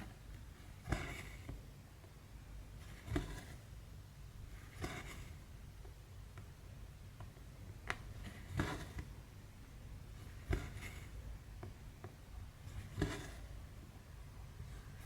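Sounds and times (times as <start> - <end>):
thread rasping through fabric: 10.2 - 11.2.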